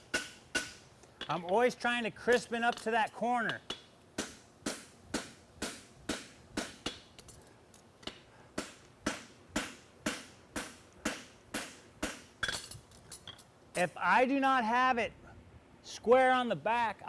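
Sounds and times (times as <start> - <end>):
hammer striking horseshoe on anvil: 0.1 - 1.6, 3.5 - 7.1, 8.0 - 12.8.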